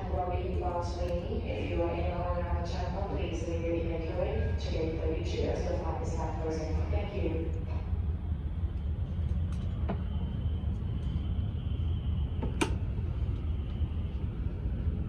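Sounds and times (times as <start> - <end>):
faint high whine: 0.0 - 15.0
low rumble: 0.0 - 15.0.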